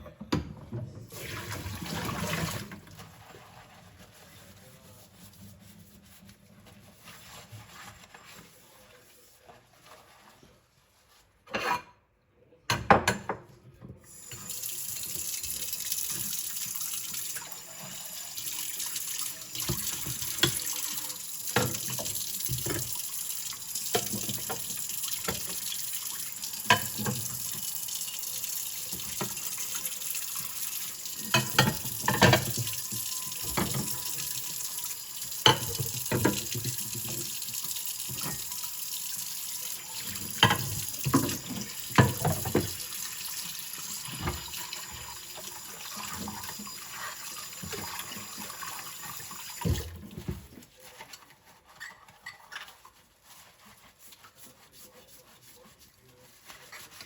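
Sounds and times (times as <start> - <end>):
dishes knocking and clinking: 12.7 - 13.5, 26.6 - 27.4, 31.2 - 34.2, 35.4 - 37.3
tap running into a sink: 14.3 - 23.1, 23.8 - 46.8.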